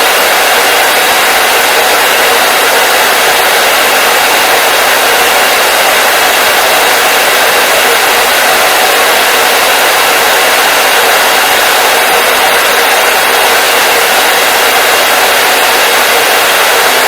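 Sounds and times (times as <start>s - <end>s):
hair dryer blowing: 0.0s - 17.0s.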